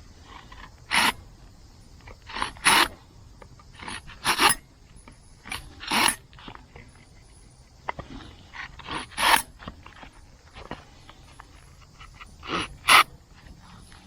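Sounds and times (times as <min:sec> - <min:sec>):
hand tool scraping wood: 0:00.2 - 0:01.2, 0:02.0 - 0:03.0, 0:03.7 - 0:04.7, 0:05.4 - 0:07.2, 0:07.8 - 0:14.0.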